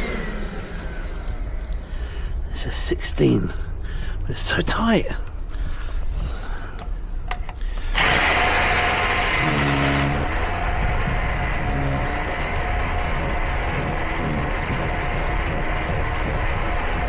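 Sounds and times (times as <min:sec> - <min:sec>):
mechanical running noise: 0:00.0 - 0:02.2, 0:07.9 - 0:17.0.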